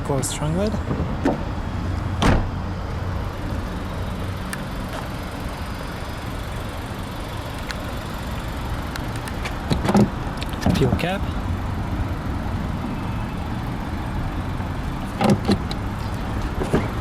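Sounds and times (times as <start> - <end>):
car trunk lid thump: 2.2 - 2.6.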